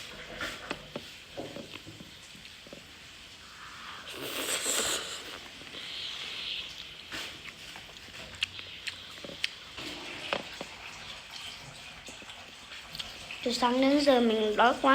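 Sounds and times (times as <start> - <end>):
slurping noodles: 3.4 - 10.9.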